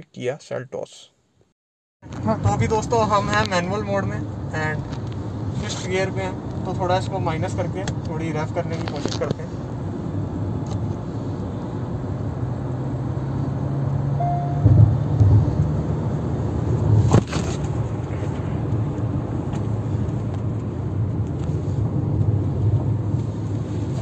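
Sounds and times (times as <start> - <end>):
tyre and road noise: 2.0 - 24.0
car engine pulling: 2.1 - 24.0
brief beep: 14.2 - 14.9
sharp knock: 14.5 - 15.6
loud thumps: 14.5 - 15.8.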